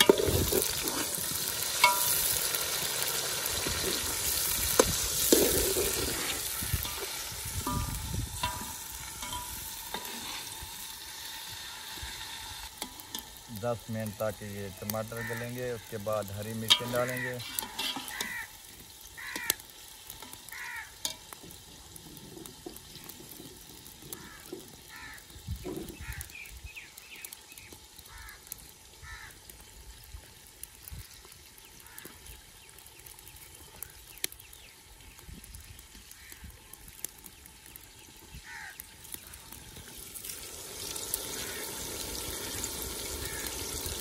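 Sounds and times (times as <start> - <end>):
food sizzling in a pot: 0.0 - 44.0
birds calling: 13.6 - 19.7, 37.3 - 40.1, 41.2 - 44.0.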